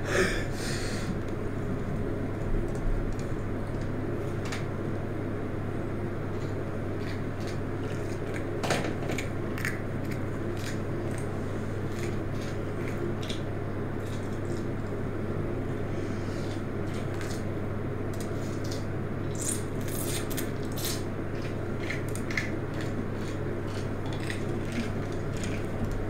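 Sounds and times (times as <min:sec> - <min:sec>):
low electrical hum: 0:00.0 - 0:26.0
person chewing: 0:06.3 - 0:08.5, 0:09.2 - 0:14.8, 0:18.2 - 0:26.0.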